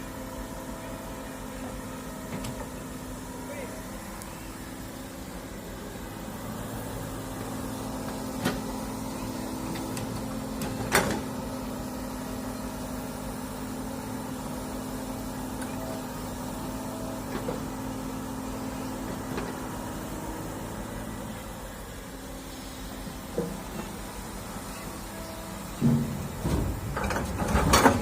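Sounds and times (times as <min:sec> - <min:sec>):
excavator diesel engine running: 0:00.0 - 0:28.0
sharp knocks: 0:25.8 - 0:28.0.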